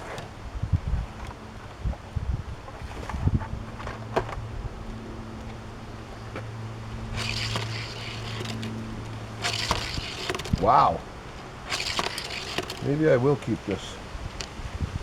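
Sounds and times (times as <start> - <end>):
steady low hum: 0.0 - 15.0
clattering rattles: 7.1 - 10.8, 11.6 - 13.0
toy car on plastic track: 7.2 - 8.8, 9.4 - 11.0, 11.7 - 13.0.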